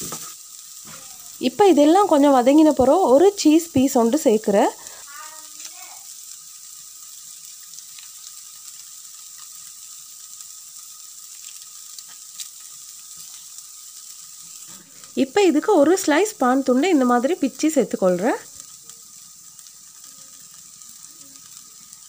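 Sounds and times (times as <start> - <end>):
vegetables sizzling in a pan: 0.0 - 22.0.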